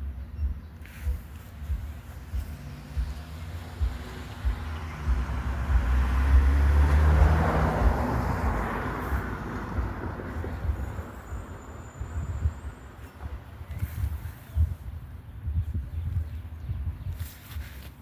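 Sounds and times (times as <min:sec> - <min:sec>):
vehicle driving past: 0:02.6 - 0:11.3.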